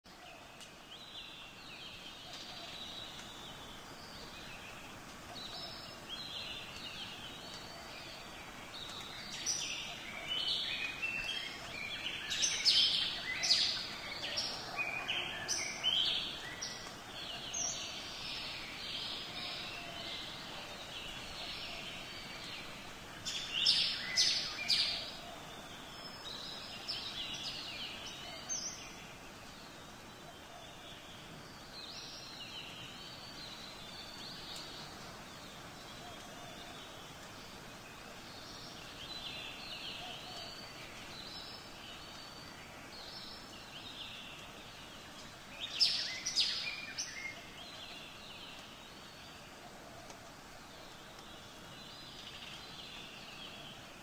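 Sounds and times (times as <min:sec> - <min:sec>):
steady background hiss: 0:00.1 - 0:54.0
birds chirping and calling: 0:00.4 - 0:54.0.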